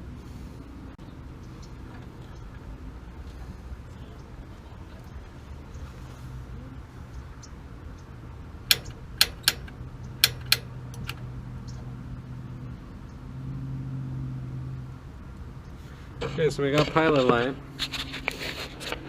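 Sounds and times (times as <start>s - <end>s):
piezo igniter clicking: 8.7s - 11.2s.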